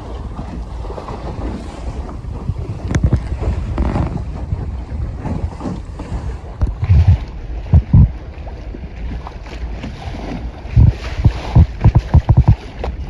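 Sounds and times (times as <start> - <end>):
wind buffeting microphone: 0.0 - 13.0
water rushing: 6.4 - 13.0
loud low thumps: 6.6 - 8.2, 10.8 - 12.6.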